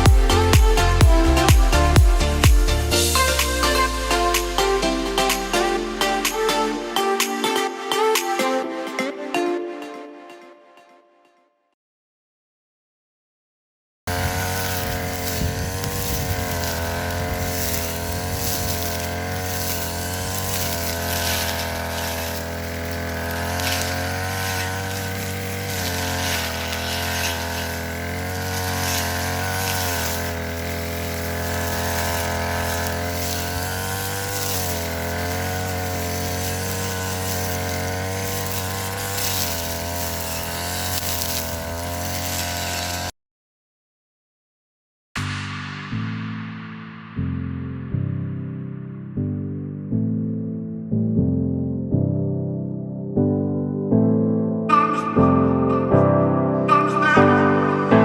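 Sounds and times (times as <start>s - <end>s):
brush cutter engine cutting grass: 0.0s - 8.3s, 14.1s - 43.2s, 56.8s - 58.0s.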